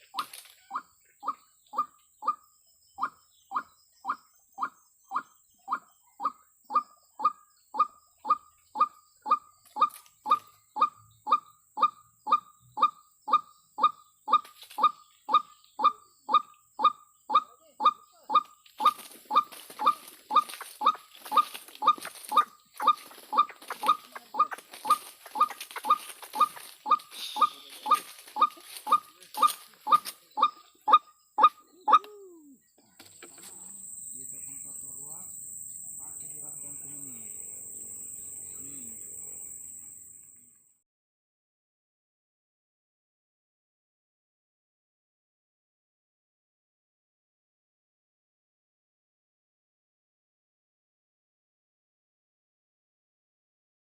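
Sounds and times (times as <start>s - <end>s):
waterhen calling: 0.0s - 2.4s, 3.0s - 32.5s
insects shrilling: 9.3s - 10.9s, 18.4s - 30.6s, 33.0s - 40.2s.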